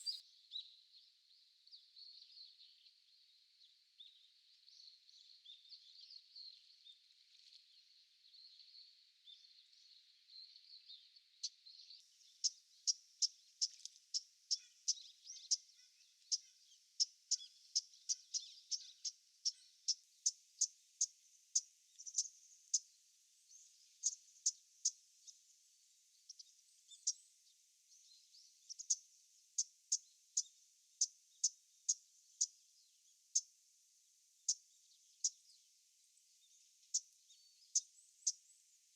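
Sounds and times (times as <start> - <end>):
faint high hiss: 0.0 - 0.2.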